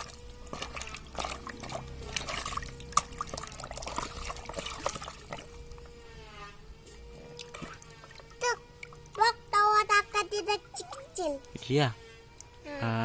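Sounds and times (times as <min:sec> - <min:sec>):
water trickling and splashing: 0:00.0 - 0:05.8, 0:07.3 - 0:11.6.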